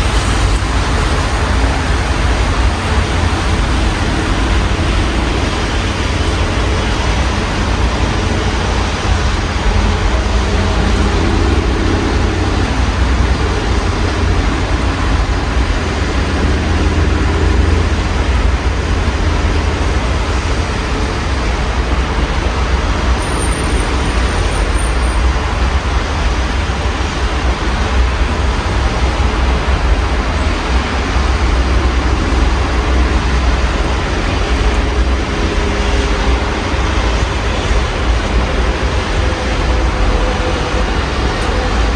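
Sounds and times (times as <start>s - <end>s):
road traffic rumble: 0.0s - 41.9s
steady rain: 0.0s - 41.9s.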